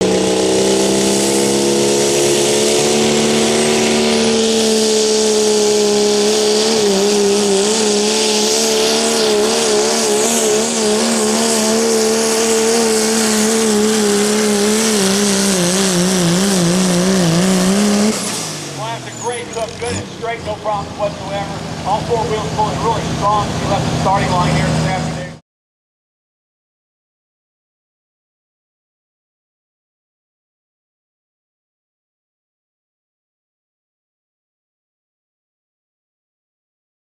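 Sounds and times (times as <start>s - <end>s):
diesel truck engine at full throttle: 0.0s - 25.4s.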